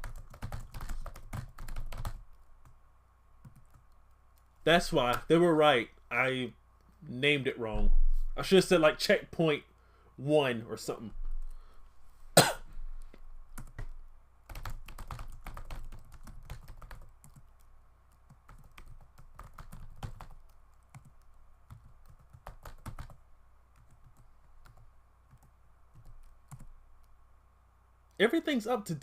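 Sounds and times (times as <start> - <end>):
typing on computer keyboard: 0.0 - 2.3, 3.4 - 4.5, 13.5 - 13.9, 14.5 - 23.2, 23.8 - 26.7.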